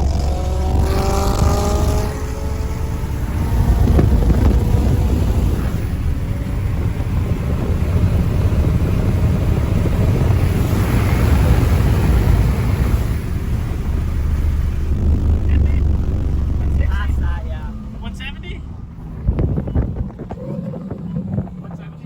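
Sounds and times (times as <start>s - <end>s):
low car engine drone: 0.0s - 22.0s
wind buffeting microphone: 0.0s - 22.0s.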